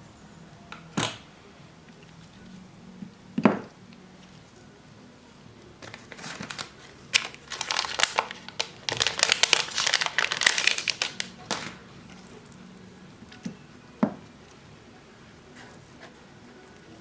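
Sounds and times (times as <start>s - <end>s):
plastic packaging crinkling: 5.8s - 11.9s.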